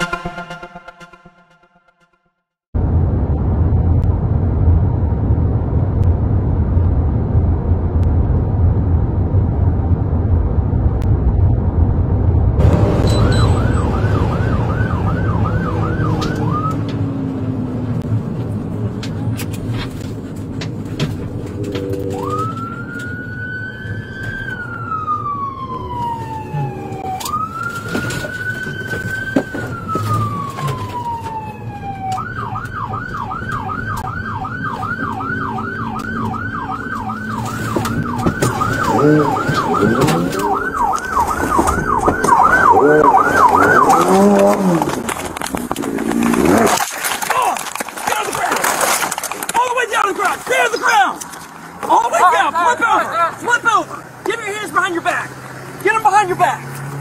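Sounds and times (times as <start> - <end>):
police siren: 0.0 - 2.2, 12.6 - 18.0, 21.4 - 45.2
low road rumble: 0.0 - 57.0.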